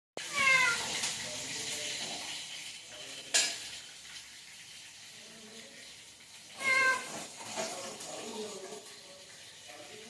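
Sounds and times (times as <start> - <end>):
parrot squawk: 0.2 - 1.0, 6.6 - 7.2.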